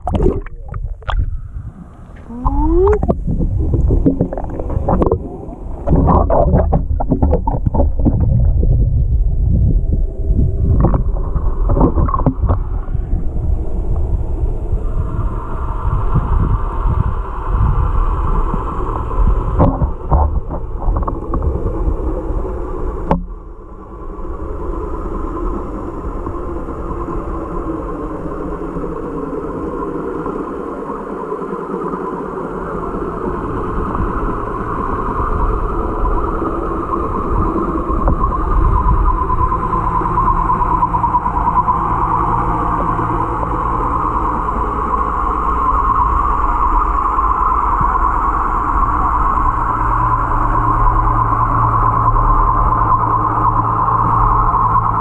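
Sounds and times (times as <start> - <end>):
steady droning hum: 0.0 - 55.0
water sloshing and bubbling: 0.0 - 55.0
knocks and clicks: 5.9 - 8.7.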